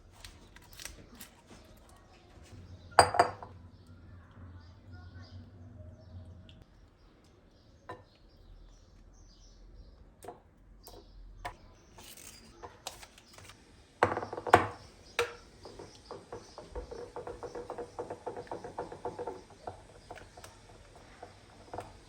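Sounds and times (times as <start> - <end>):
dishes and utensils clicking: 12.0 - 22.0.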